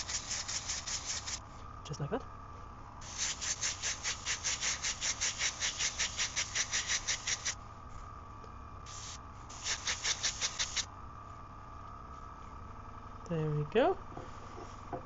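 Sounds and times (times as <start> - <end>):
airbrush spraying in hissing pulses: 0.0 - 1.4, 3.0 - 7.6, 8.9 - 10.9.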